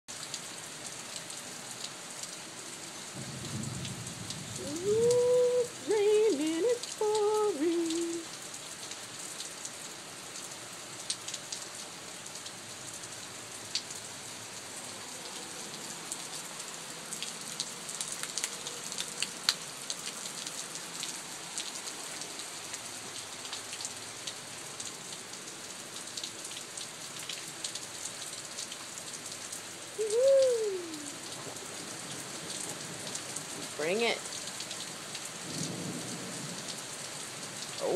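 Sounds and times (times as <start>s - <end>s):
heavy rain falling: 0.1s - 37.9s.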